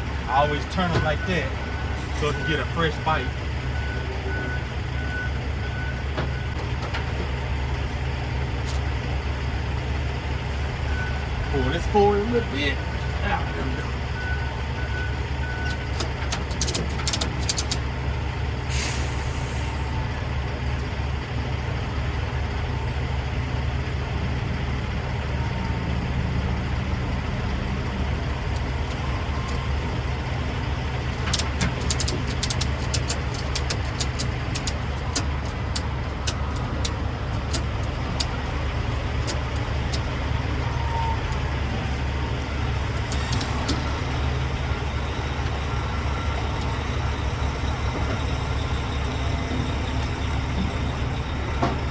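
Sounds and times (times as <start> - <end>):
truck diesel engine idling: 0.0 - 51.9
air hiss: 18.7 - 19.9.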